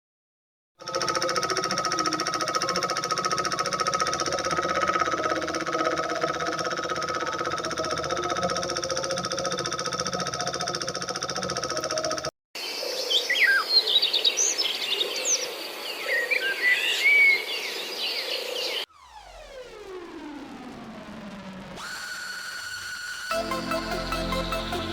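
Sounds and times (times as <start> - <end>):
downward sweeping tone: 18.9 - 24.9.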